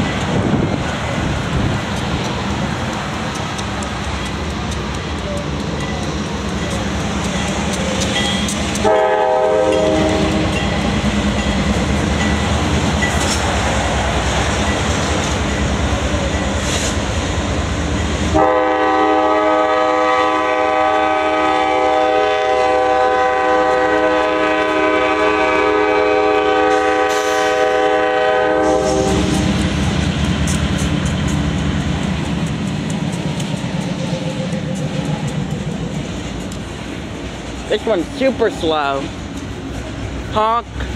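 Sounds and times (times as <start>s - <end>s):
train rumbling past: 0.0s - 40.9s
locomotive air horn: 8.8s - 10.6s, 18.3s - 29.5s.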